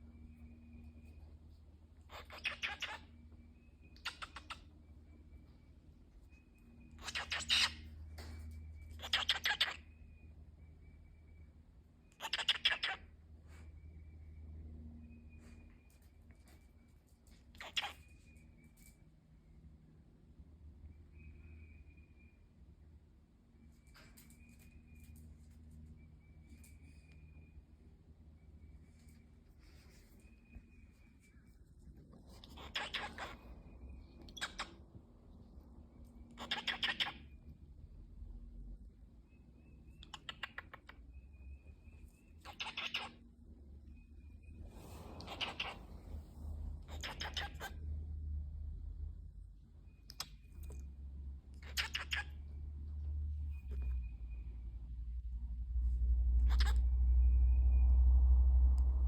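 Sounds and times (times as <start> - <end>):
low hum: 37.2 - 59.0.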